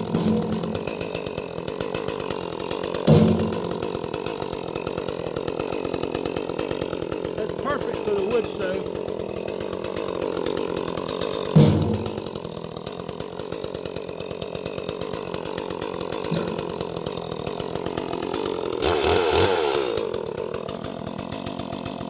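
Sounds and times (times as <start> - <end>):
chainsaw cutting wood: 0.0 - 22.0
sharp knock: 3.1 - 3.7, 11.6 - 12.3.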